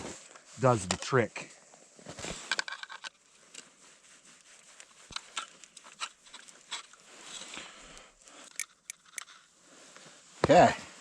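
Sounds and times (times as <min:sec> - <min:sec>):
hands handling fishing gear: 0:01.8 - 0:09.6.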